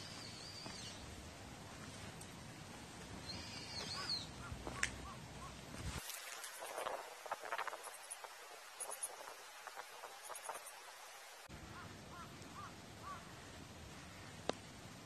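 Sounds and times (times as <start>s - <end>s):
short high bird calls: 3.2s - 5.6s.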